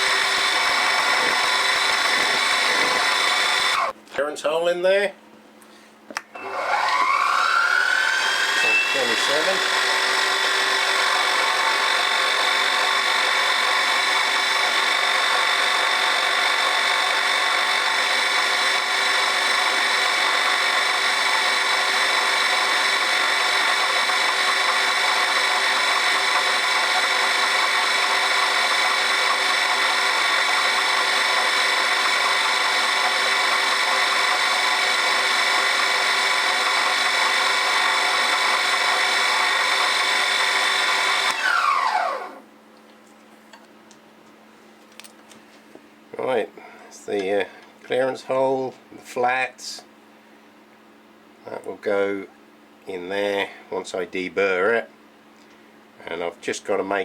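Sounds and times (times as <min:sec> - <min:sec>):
machine tool motor whine: 0:00.0 - 0:03.9, 0:06.4 - 0:42.4.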